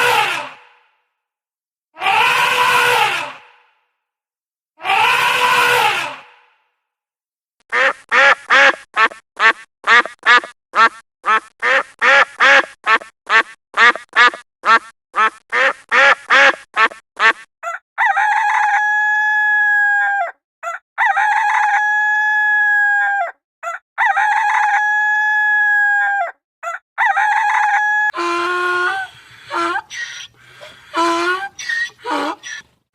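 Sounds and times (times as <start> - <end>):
chickens clucking: 28.8 - 32.8.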